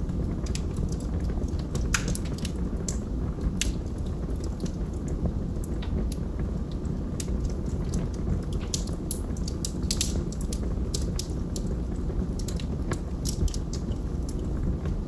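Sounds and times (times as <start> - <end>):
low rush of flames: 0.0 - 15.0
wood fire crackling and popping: 0.0 - 15.0.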